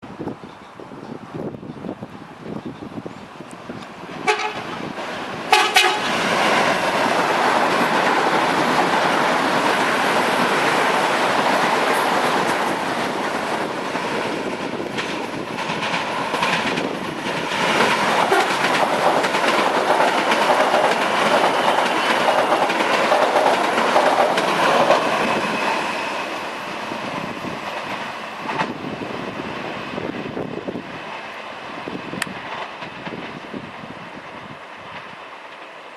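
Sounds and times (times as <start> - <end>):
train wheels rushing and rail clatter: 0.1 - 35.9
train horn toots: 4.2 - 4.7, 5.5 - 6.2.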